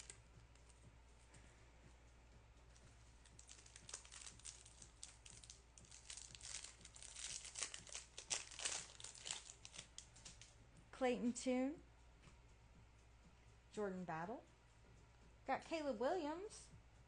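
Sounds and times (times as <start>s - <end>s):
wrapper crinkling and tearing: 3.3s - 10.5s.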